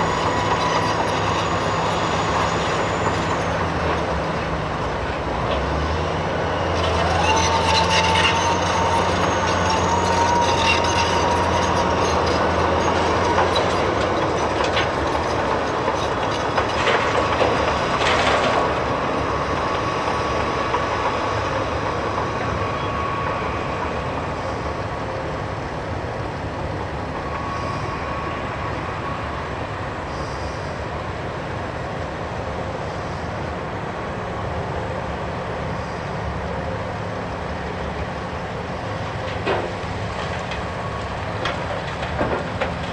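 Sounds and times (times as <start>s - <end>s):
excavator engine and hydraulics: 0.0s - 42.9s.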